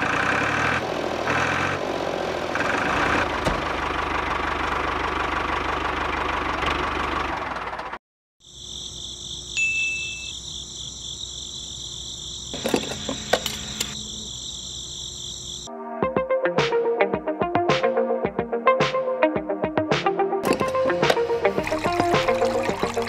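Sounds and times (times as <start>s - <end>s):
brief high beep: 9.6s - 10.4s.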